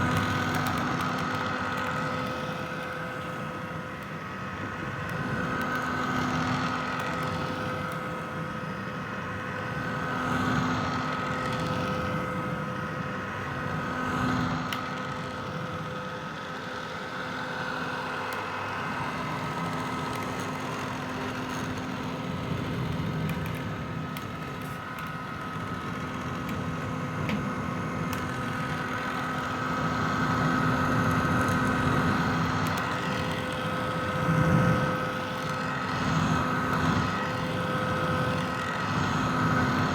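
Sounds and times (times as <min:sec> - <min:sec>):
hair dryer running: 0:13.7 - 0:39.9.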